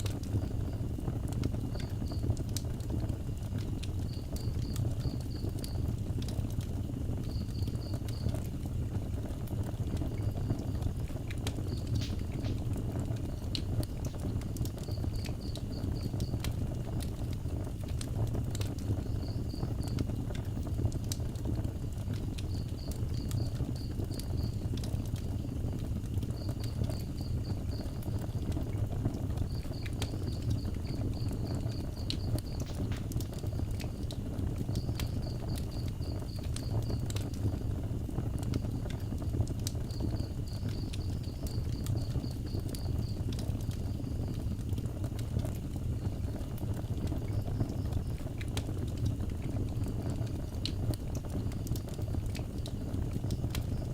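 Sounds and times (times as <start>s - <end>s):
wood fire crackling: 0.0s - 53.9s
insect chirping trills: 10.2s - 16.6s, 18.9s - 20.1s, 26.3s - 28.4s, 29.3s - 34.1s, 34.7s - 37.7s, 38.7s - 44.4s.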